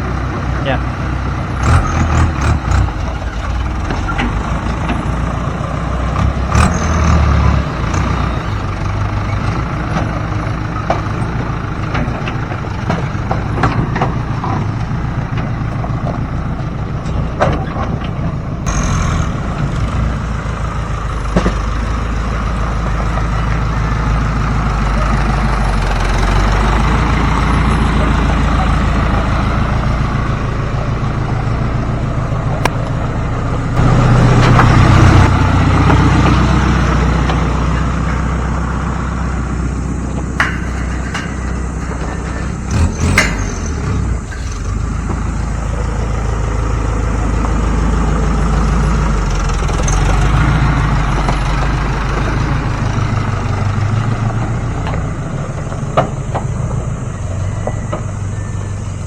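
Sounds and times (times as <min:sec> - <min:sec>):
diesel construction machinery running: 0:00.0 - 0:59.0
sharp metallic knocks: 0:40.2 - 0:45.3.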